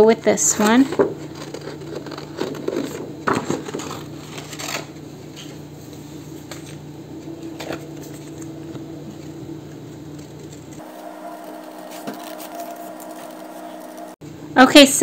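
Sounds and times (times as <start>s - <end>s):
steady low hum: 0.0s - 15.0s
paper clicks and rustles: 0.8s - 5.6s, 9.2s - 13.8s.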